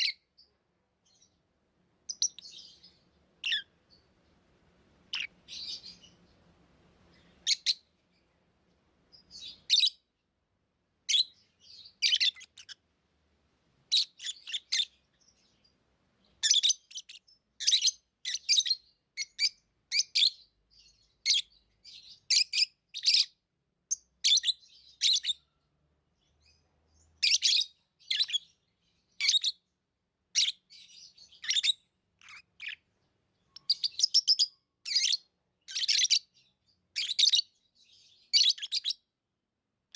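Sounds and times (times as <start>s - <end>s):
lovebirds chirping: 0.0s - 39.2s.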